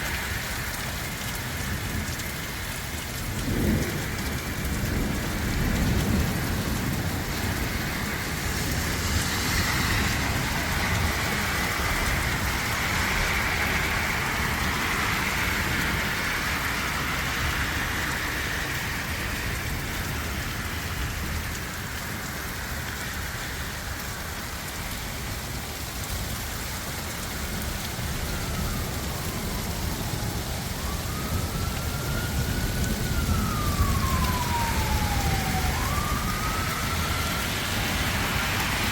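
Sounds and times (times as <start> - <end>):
heavy rain pouring: 0.0 - 38.9
siren wailing: 7.4 - 21.1, 27.7 - 38.9.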